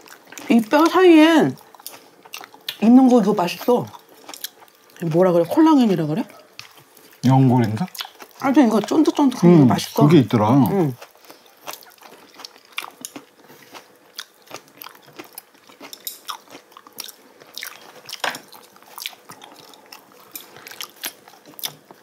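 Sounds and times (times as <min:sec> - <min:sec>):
wet mouth clicks and chewing: 0:07.8 - 0:08.4, 0:11.0 - 0:21.9.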